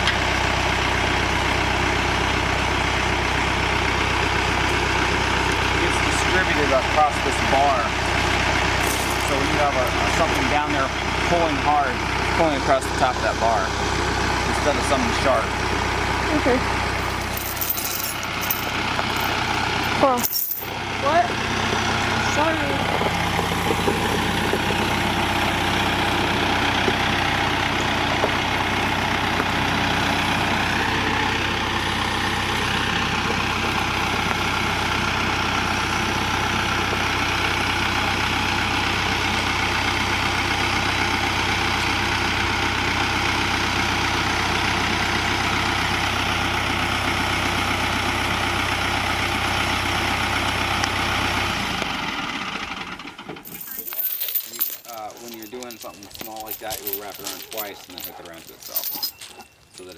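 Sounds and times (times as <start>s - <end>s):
tractor engine idling: 0.0s - 59.9s.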